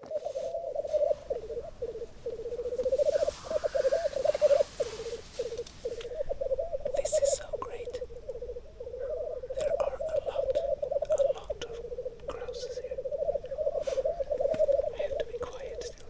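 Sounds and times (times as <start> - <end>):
grouse bubbling cooing song: 0.0 - 16.0
breathy hiss: 0.2 - 6.3.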